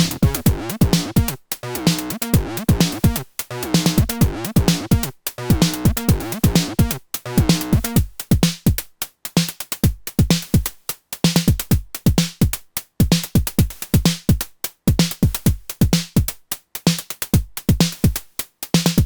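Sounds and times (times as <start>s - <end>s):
pitched percussive drum machine hits: 0.0s - 8.0s.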